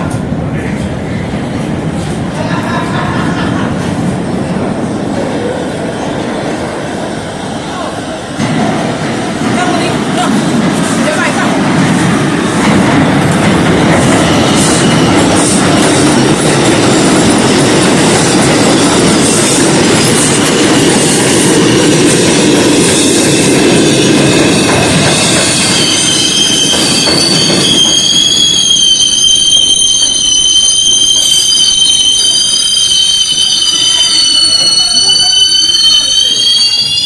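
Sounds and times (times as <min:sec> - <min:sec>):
subway train rumble: 0:00.0 - 0:37.0
high-pitched wheel squeal: 0:25.1 - 0:37.0.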